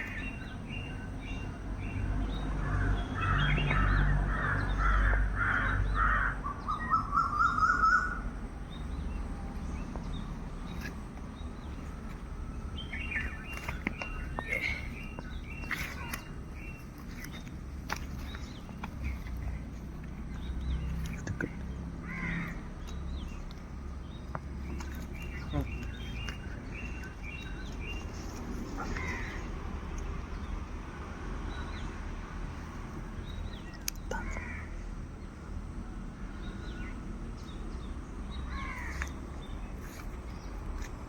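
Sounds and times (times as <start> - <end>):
faint birds calling: 0.0 - 41.0
low outdoor rumble: 0.0 - 41.0
crow cawing: 4.3 - 8.2, 22.0 - 22.8, 28.8 - 29.5, 38.5 - 39.1.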